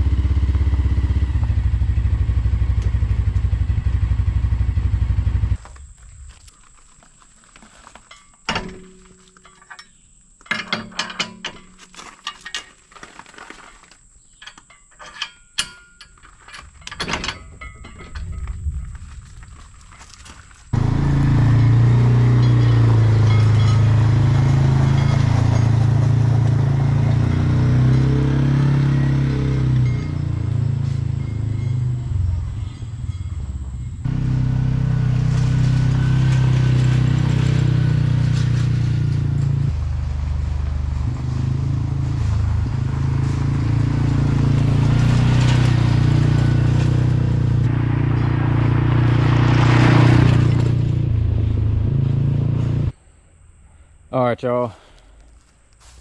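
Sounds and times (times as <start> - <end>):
vehicle engine running: 0.0 - 6.4, 20.7 - 52.9.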